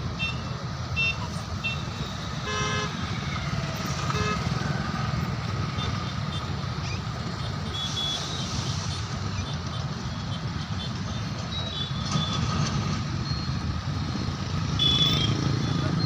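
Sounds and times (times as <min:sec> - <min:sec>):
highway traffic rumble: 0:00.0 - 0:16.0
vehicle horn: 0:01.7 - 0:03.0.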